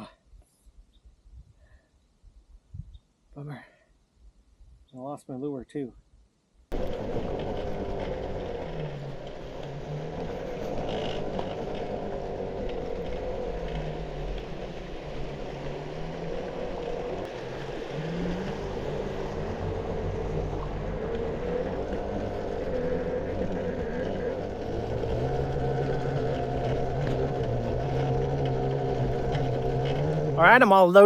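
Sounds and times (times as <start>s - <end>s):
road noise: 6.8s - 31.0s.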